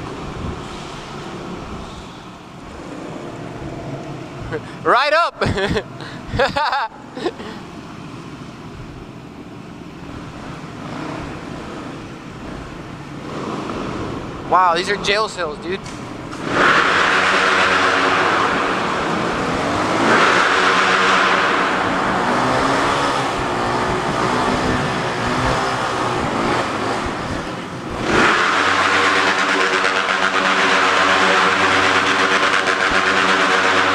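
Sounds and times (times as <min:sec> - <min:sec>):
motorcycle engine revving: 0:15.9 - 0:33.9.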